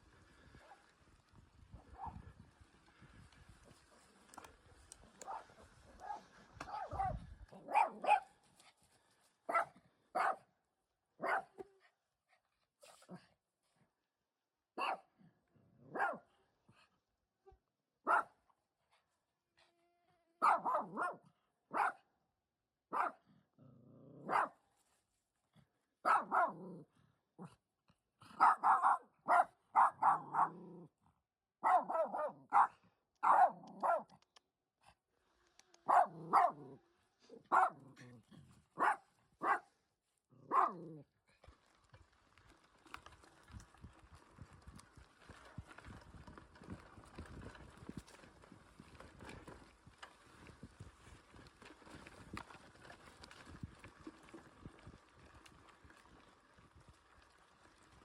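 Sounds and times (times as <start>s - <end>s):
dog barking: 2.0s - 2.2s, 5.2s - 8.4s, 9.5s - 10.5s, 11.2s - 11.7s, 14.8s - 15.1s, 15.8s - 16.3s, 18.1s - 18.4s, 20.4s - 22.0s, 22.9s - 23.2s, 24.2s - 24.6s, 26.0s - 26.8s, 28.3s - 30.7s, 31.6s - 34.2s, 35.8s - 38.2s, 38.8s - 39.7s, 40.4s - 41.0s.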